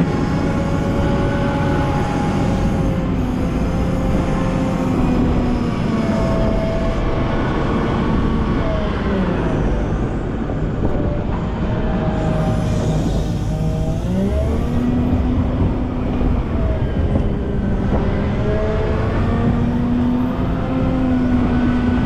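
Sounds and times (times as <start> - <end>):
wheel loader diesel engine: 0.0 - 22.0.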